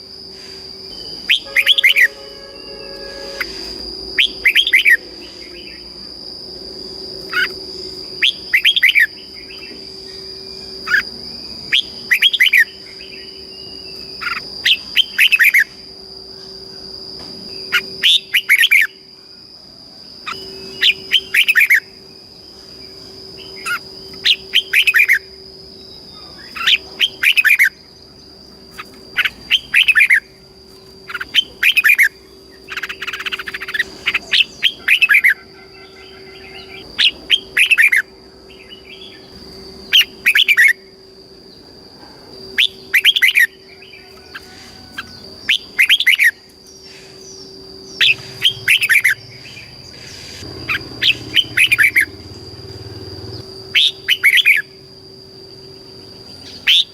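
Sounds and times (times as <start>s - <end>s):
bird singing: 0.0s - 56.9s.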